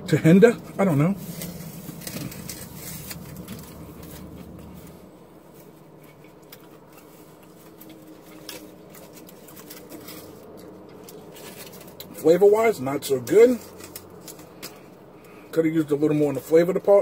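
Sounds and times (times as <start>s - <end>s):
foil wrapper crinkling: 1.2s - 12.6s, 13.3s - 15.4s.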